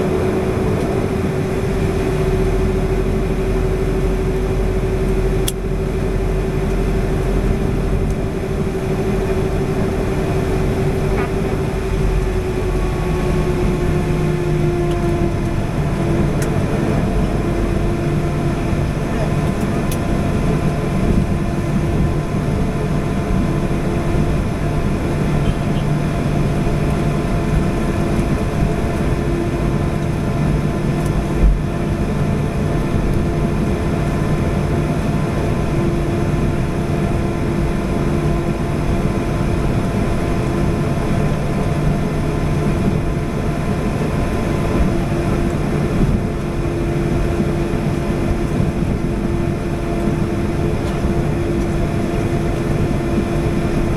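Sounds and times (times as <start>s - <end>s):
airliner engines in cabin: 0.0s - 53.9s.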